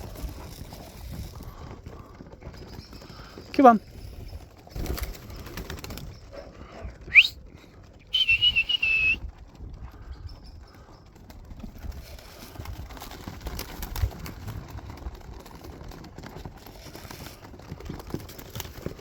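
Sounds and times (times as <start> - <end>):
person whistling: 7.1 - 7.4, 8.1 - 9.2.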